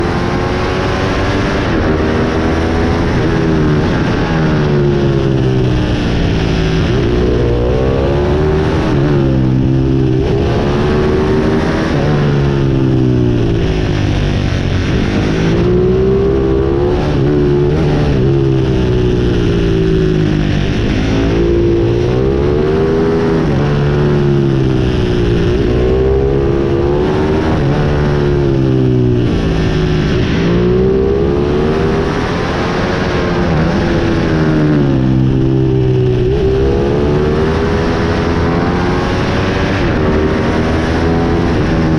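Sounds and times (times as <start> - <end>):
pit bike engine revving: 0.0 - 41.9.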